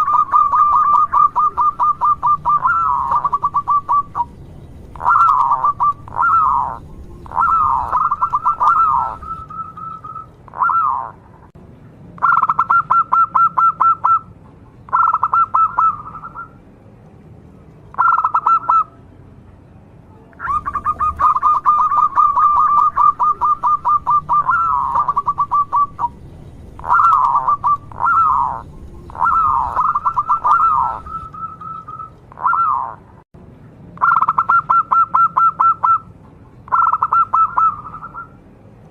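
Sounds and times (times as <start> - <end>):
dove cooing in staccato notes: 0.0 - 11.2, 12.2 - 14.3, 14.9 - 16.5, 17.9 - 18.9, 20.4 - 26.2, 26.8 - 33.0, 34.0 - 36.1, 36.7 - 38.3.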